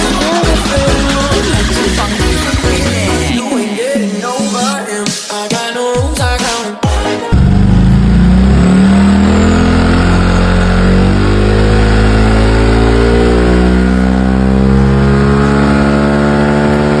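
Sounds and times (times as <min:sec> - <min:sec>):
scooter engine running: 0:00.0 - 0:03.4, 0:07.3 - 0:17.0.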